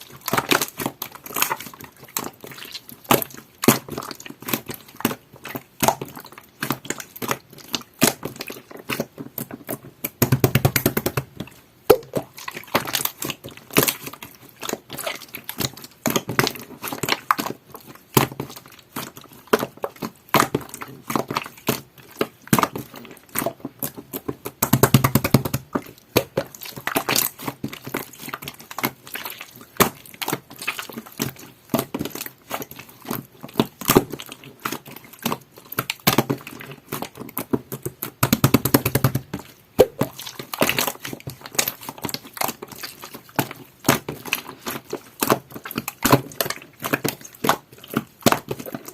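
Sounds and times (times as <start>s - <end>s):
slime rapid crackling: 0.0s - 48.9s
slime squeezed with wet clicks: 11.9s - 14.1s, 39.8s - 41.0s.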